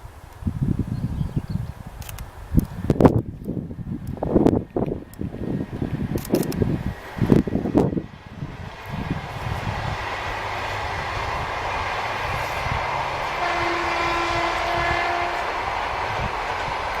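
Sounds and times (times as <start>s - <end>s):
train carriages rumbling past: 3.6s - 17.0s.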